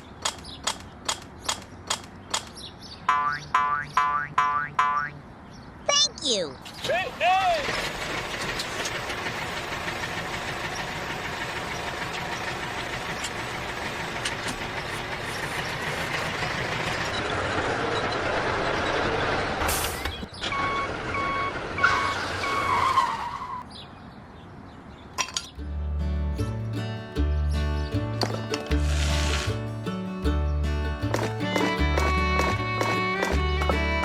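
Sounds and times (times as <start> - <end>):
short electronic beeps: 20.5 - 22.7.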